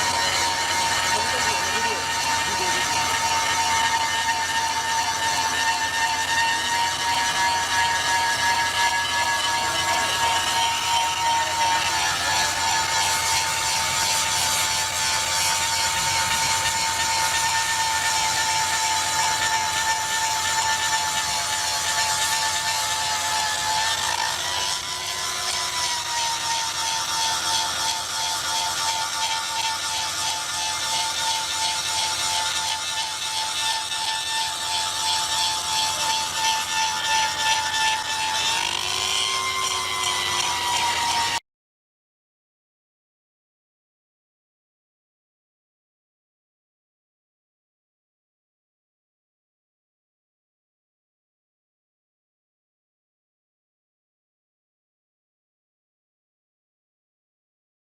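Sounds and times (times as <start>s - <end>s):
machinery whine: 0.0s - 41.4s
power tool grinding rail steel: 0.0s - 41.4s.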